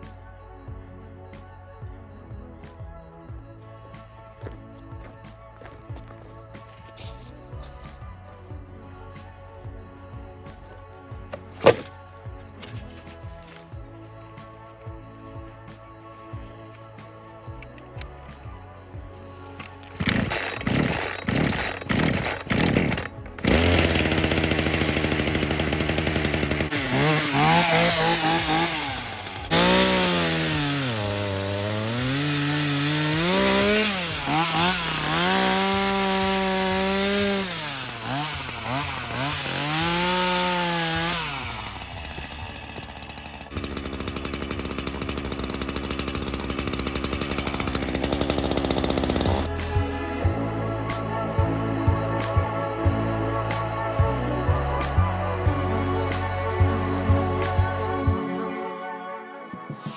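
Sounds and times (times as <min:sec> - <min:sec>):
chainsaw engine revving: 0:11.6 - 0:12.0, 0:19.9 - 0:49.5.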